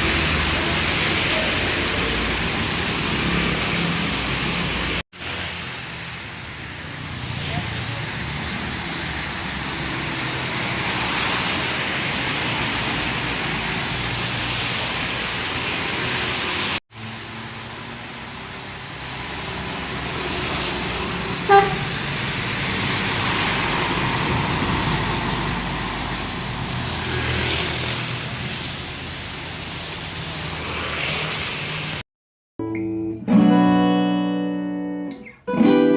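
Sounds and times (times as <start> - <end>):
large vehicles passing: 0.0 - 32.0
rain: 0.0 - 32.0
tyres hissing on wet road: 0.0 - 32.0
vehicle horn beep: 21.5 - 22.1
strummed acoustic guitar music: 32.6 - 35.9.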